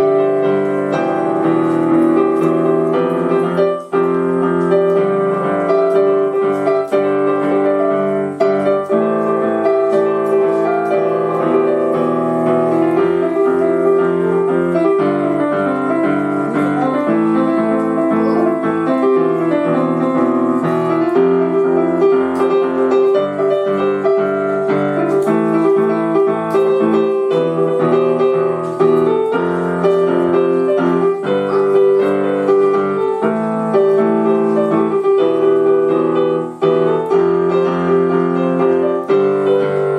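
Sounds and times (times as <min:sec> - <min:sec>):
piano piece: 0:00.0 - 0:39.9.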